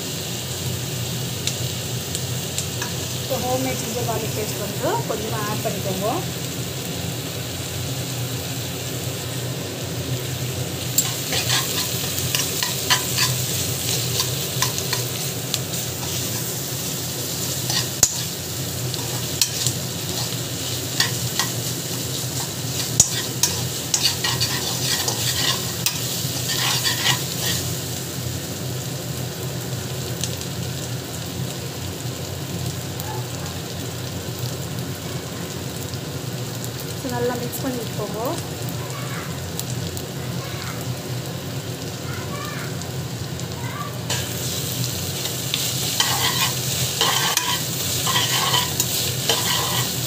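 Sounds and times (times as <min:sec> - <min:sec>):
onions sizzling in oil: 0:00.0 - 0:50.0
spatula scraping pan: 0:11.0 - 0:16.7, 0:17.5 - 0:27.7, 0:45.2 - 0:50.0.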